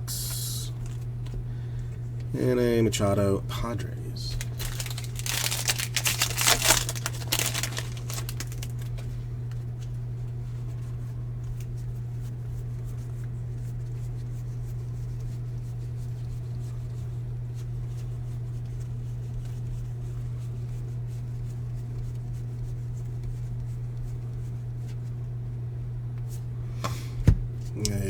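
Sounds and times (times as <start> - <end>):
steady low hum: 0.0 - 28.0
foil wrapper crinkling and tearing: 4.3 - 9.2.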